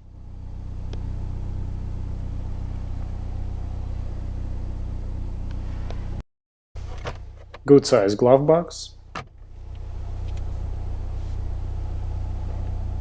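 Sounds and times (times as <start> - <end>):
car engine idling hum: 0.0 - 6.2, 6.8 - 13.0.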